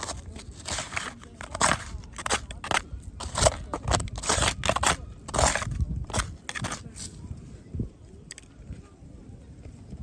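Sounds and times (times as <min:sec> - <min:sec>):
sand and grit crunching: 0:00.0 - 0:07.7.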